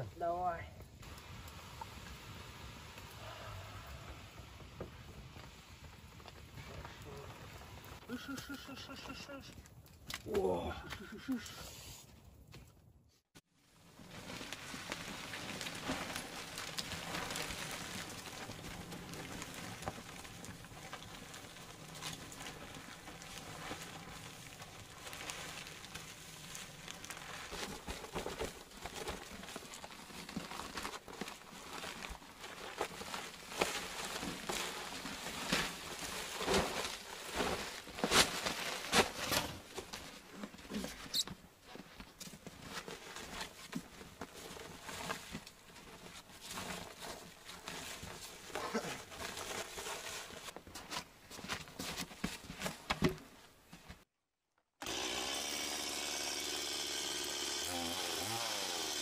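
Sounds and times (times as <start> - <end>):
plastic sheeting rustling: 13.6 - 54.0.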